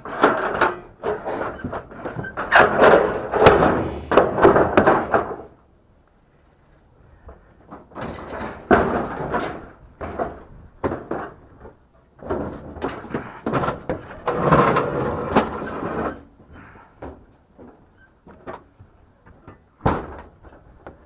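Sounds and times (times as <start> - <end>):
scrap items knocking and scraping: 0.1 - 5.5.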